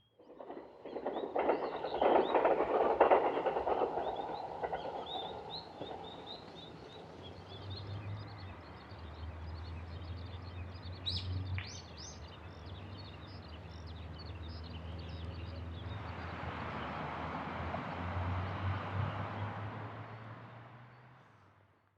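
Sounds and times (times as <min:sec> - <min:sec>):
low distant rumble: 0:00.2 - 0:07.8.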